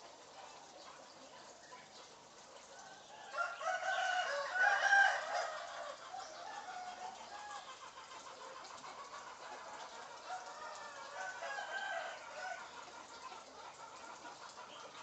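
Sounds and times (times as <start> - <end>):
bird crowing: 3.2 - 7.7.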